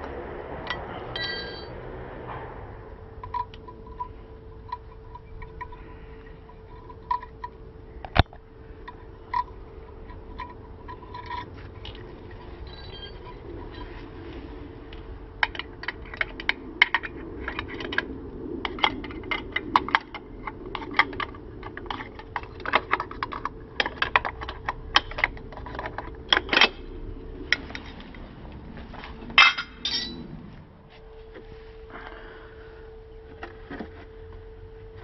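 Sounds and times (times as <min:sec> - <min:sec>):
faint steady hum: 0:00.0 - 0:35.0
metal tools clinking: 0:00.7 - 0:01.8, 0:08.8 - 0:14.1, 0:29.4 - 0:30.3
metal parts clattering: 0:01.1 - 0:01.7, 0:08.8 - 0:14.0, 0:29.4 - 0:30.2.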